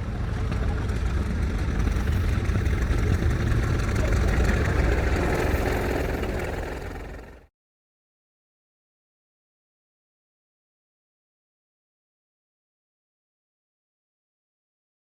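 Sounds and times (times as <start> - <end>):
machinery clatter: 0.0 - 7.5
steam engine low rumble: 0.0 - 7.5.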